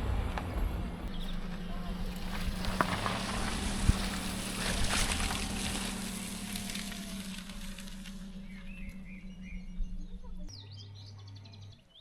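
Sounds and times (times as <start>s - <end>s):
low hum: 0.0s - 12.0s
small birds chirping: 1.1s - 4.6s, 6.1s - 12.0s.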